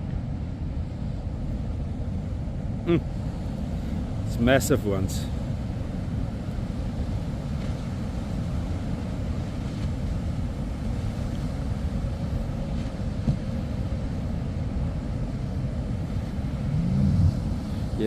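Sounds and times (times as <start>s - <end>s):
wind noise on microphone: 6.0s - 18.0s
surf breaking: 15.9s - 18.0s.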